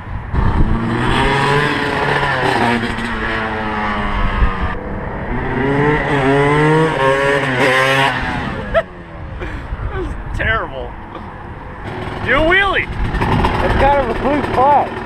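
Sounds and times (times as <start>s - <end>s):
motocross engine revving: 0.4s - 8.8s, 11.8s - 15.0s.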